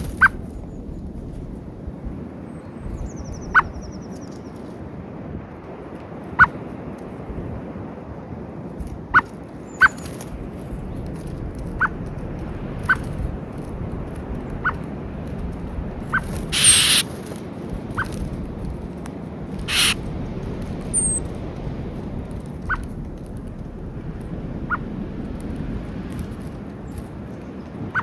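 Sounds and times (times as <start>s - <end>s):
steady low rumble: 0.0s - 4.2s, 7.2s - 7.7s, 8.7s - 28.0s
rustling of wingbeats: 0.0s - 4.8s, 8.7s - 28.0s
small bird chirping: 9.7s - 13.3s, 15.9s - 17.1s, 19.6s - 21.4s, 22.6s - 23.8s
bird call note: 19.7s - 20.0s.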